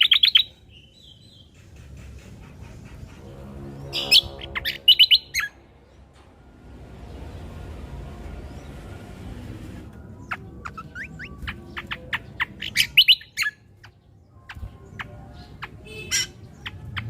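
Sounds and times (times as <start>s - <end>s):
bird chirping and whistling: 0.0s - 1.6s, 4.0s - 5.6s, 10.2s - 17.0s.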